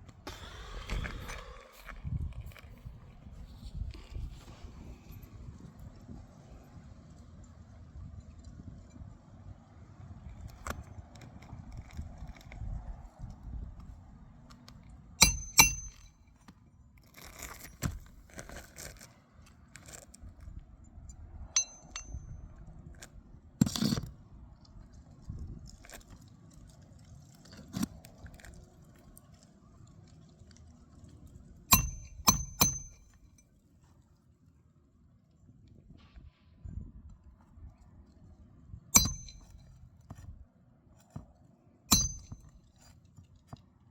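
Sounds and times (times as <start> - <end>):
metal tools clinking: 15.2 - 16.1, 21.6 - 22.2, 31.7 - 33.0, 39.0 - 39.6, 41.9 - 42.5.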